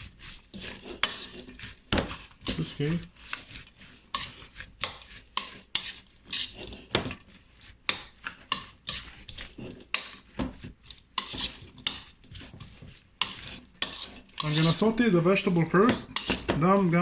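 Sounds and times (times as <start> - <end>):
utensil scraping a bowl: 0.0 - 17.0.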